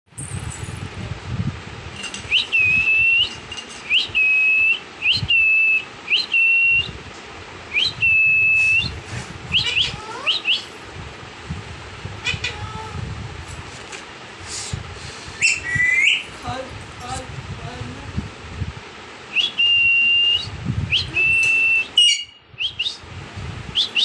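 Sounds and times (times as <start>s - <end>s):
parrot whistling: 7.7s - 10.7s, 15.4s - 16.2s, 19.3s - 23.0s, 23.8s - 24.0s
parrot chirps: 9.5s - 10.7s, 15.4s - 16.2s, 21.4s - 23.0s.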